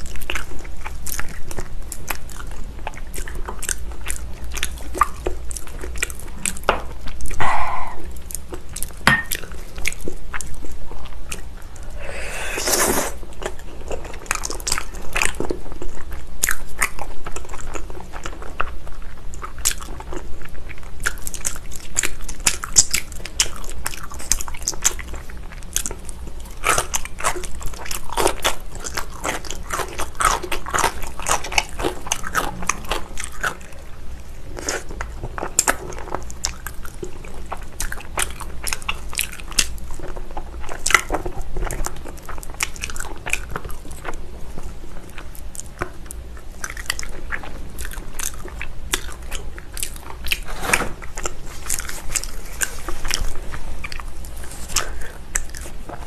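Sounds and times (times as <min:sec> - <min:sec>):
chewing and biting meat: 0:13.2 - 0:56.0.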